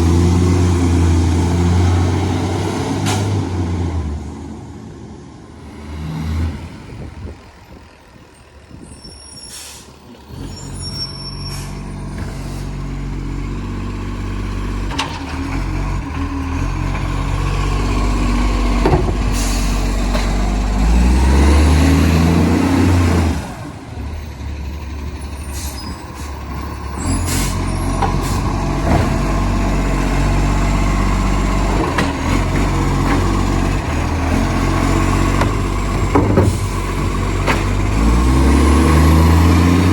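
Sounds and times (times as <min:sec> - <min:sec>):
diesel truck engine revving: 0:00.0 - 0:39.9
air brake hisses: 0:09.1 - 0:10.1.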